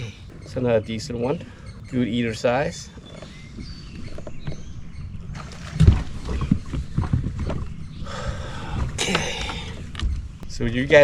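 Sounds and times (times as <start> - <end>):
knocks and thumps: 5.4 - 7.8.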